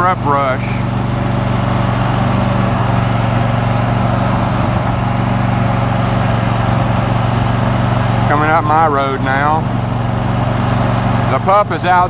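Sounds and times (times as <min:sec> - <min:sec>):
riding lawn mower engine: 0:00.0 - 0:12.0.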